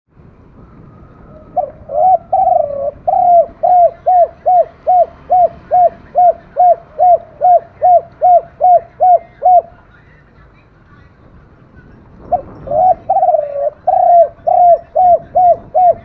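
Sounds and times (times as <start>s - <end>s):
dove cooing: 1.2s - 9.8s, 12.3s - 16.0s.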